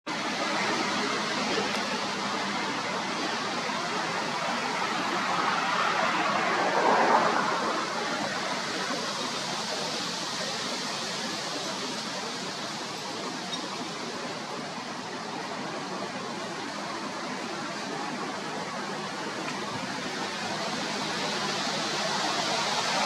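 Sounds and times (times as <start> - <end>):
airliner jet engines passing: 0.2 - 13.3.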